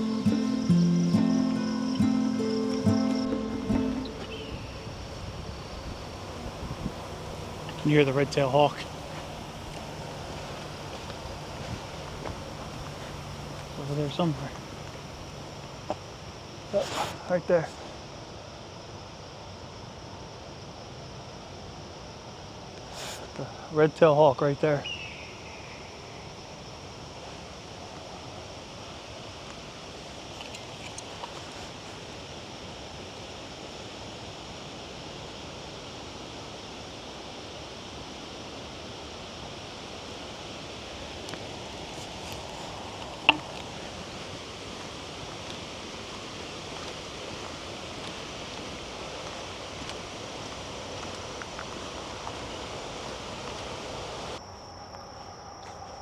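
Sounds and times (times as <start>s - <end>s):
leaves rustling: 0.0s - 18.0s, 38.4s - 54.4s
insects droning: 0.0s - 56.0s.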